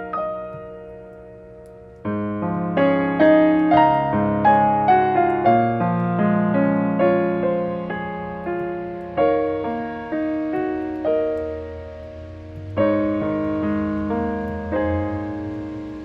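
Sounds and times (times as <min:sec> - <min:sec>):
soft slow piano music: 0:00.0 - 0:16.0.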